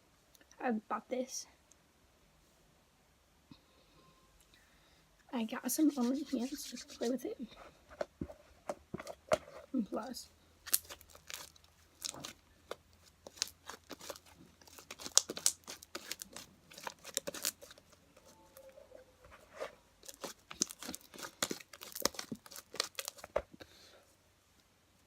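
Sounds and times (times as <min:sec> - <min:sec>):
slime squeezed and stretched: 0:10.6 - 0:17.8.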